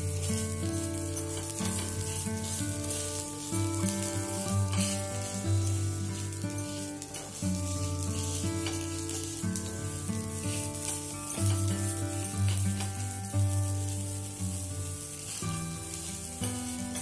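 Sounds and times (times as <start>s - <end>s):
wooden spatula scraping: 0.0s - 9.8s
low sustained background music: 0.0s - 17.0s
pancake sizzling in oil: 0.0s - 17.0s.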